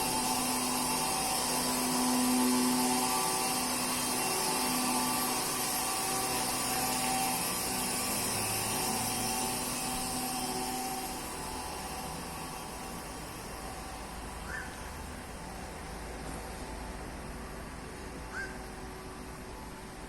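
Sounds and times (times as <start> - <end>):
stone-cutting machine hiss: 0.0 - 15.9
motor tones: 0.0 - 20.0.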